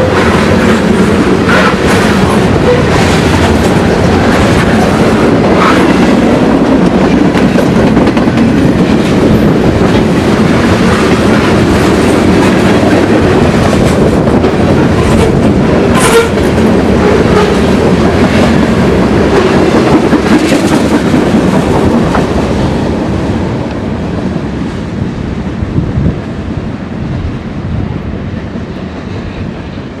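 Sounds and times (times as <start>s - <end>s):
train wheels clicking over rail joints: 0.0s - 22.8s.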